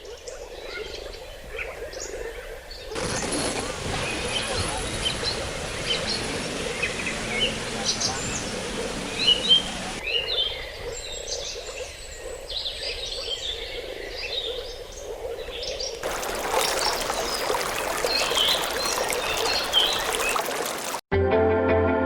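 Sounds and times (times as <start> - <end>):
flowing water: 3.0 - 10.0, 16.0 - 21.1
birds chirping: 3.0 - 12.7, 16.0 - 21.0.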